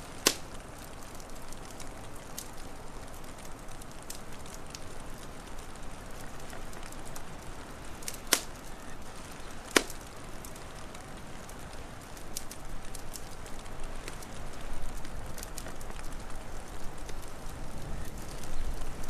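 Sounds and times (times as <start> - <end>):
fire popping: 0.0 - 19.0
wood fire crackling: 0.0 - 19.0.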